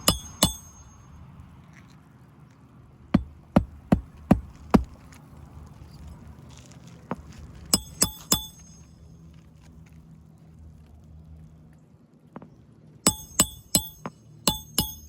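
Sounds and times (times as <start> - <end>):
hammer driving nails into shingle: 0.0 - 0.9, 3.2 - 5.0, 7.8 - 8.8, 13.1 - 15.0.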